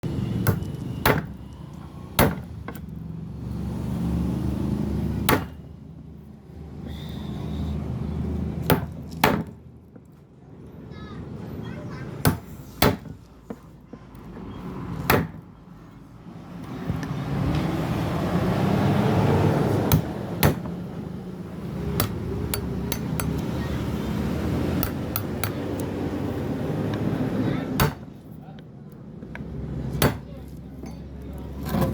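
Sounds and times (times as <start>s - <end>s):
hammer striking chisel into wood: 0.4s - 1.4s, 2.2s - 2.9s, 5.2s - 5.6s, 8.6s - 9.6s, 12.2s - 13.2s, 15.0s - 15.4s, 19.9s - 20.8s, 21.9s - 23.4s, 27.8s - 28.2s, 29.9s - 30.4s.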